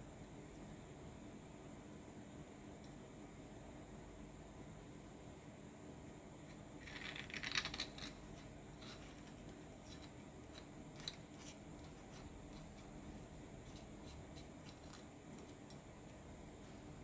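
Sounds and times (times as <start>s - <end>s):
steady low hum: 0.0s - 17.0s
small hard parts clicking and scraping: 6.8s - 8.2s, 8.8s - 12.8s.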